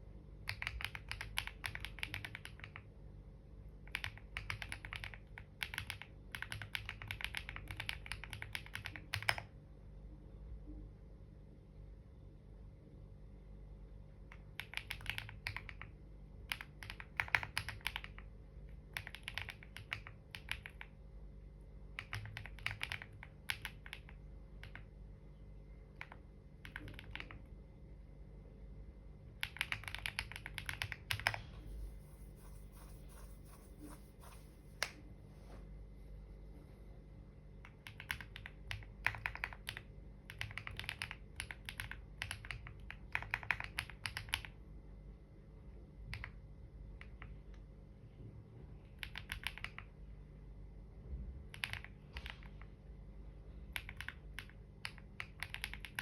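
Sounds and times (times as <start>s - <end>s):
typing on computer keyboard: 0.4s - 2.9s, 3.8s - 9.6s, 14.2s - 21.0s, 21.9s - 24.9s, 25.9s - 27.5s, 29.4s - 31.4s, 37.6s - 44.6s, 46.1s - 46.4s, 48.9s - 49.9s, 51.5s - 52.7s, 53.7s - 56.0s.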